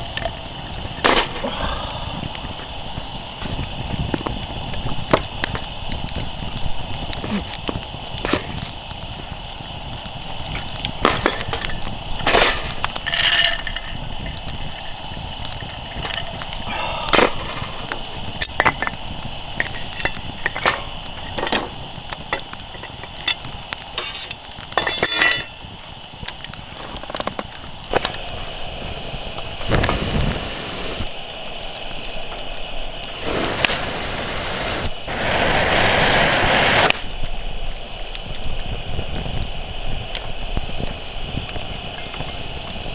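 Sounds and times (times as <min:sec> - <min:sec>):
hissing: 0:00.0 - 0:37.6
high insect trill: 0:00.0 - 0:42.9
clicks and clinks: 0:10.6 - 0:19.0, 0:19.6 - 0:25.7.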